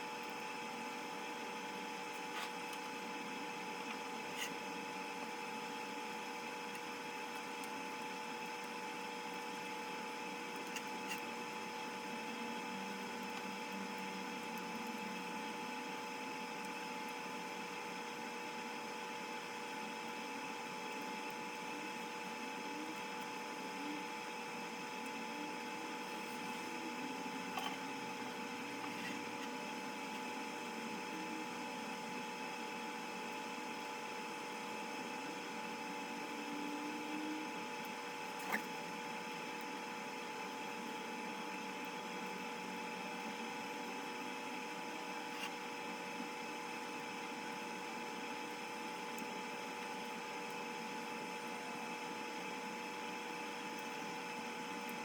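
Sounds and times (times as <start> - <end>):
mechanical hum with fixed tones: 0.0 - 55.0.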